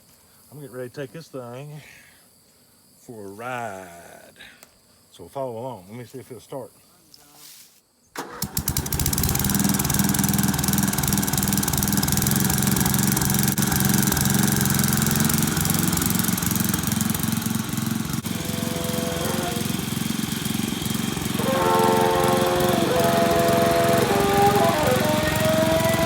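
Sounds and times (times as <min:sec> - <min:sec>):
riding lawn mower engine running: 0:08.2 - 0:26.0.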